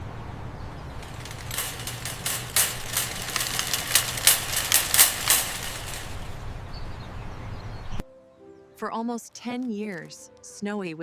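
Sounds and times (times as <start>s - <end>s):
sharp clicks and crunches: 0.9s - 6.6s.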